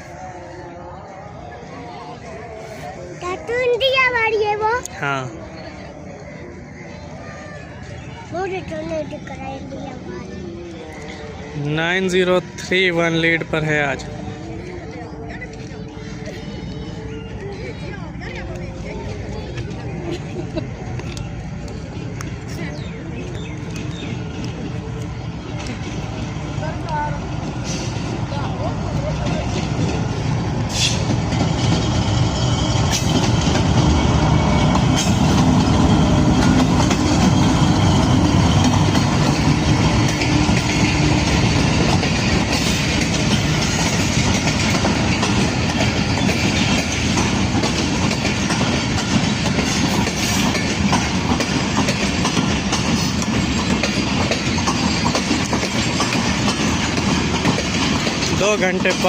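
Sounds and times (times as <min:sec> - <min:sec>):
train rumbling past: 0:00.0 - 0:59.0
wheels clacking over rail joints: 0:20.9 - 0:59.0.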